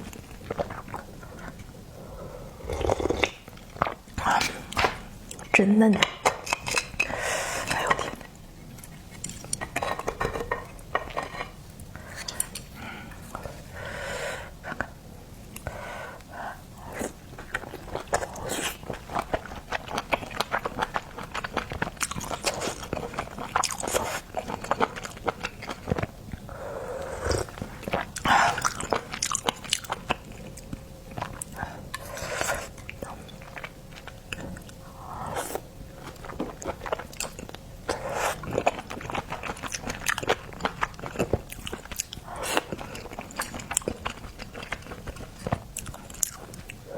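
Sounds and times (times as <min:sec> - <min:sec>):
chewing and mouth smacks: 0:17.0 - 0:34.8, 0:35.4 - 0:46.8.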